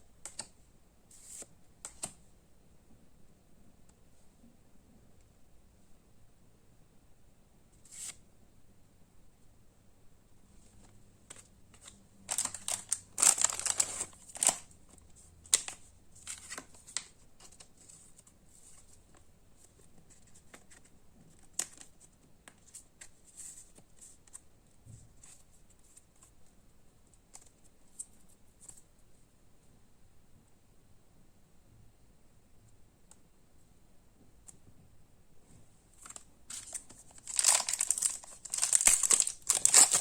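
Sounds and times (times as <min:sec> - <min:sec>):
cards rustling and clicking: 0:11.3 - 0:24.4, 0:36.0 - 0:40.0
packaging crinkling and tearing: 0:11.8 - 0:14.7, 0:36.1 - 0:40.0.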